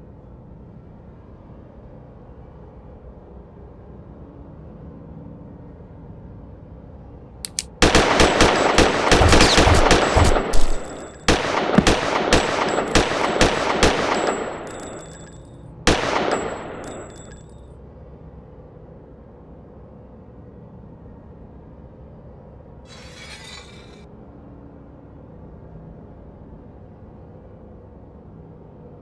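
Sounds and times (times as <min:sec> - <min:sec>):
gunshots echoing: 0:07.8 - 0:17.4.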